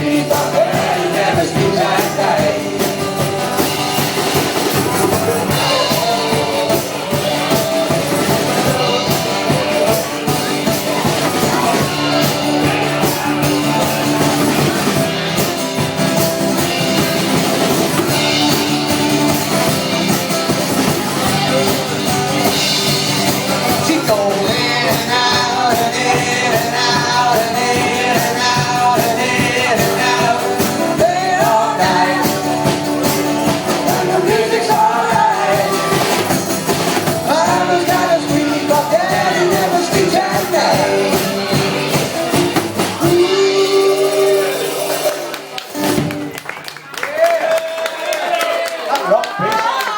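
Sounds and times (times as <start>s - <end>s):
person singing: 0.0s - 14.8s, 22.5s - 45.4s
rock band playing: 0.0s - 47.0s.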